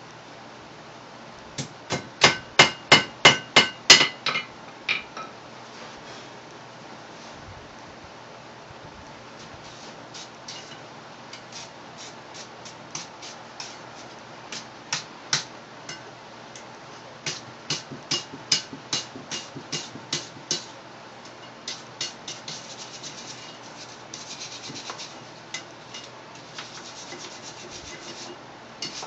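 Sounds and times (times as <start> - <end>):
hammer striking steel on anvil: 1.9 - 5.3, 17.3 - 20.7.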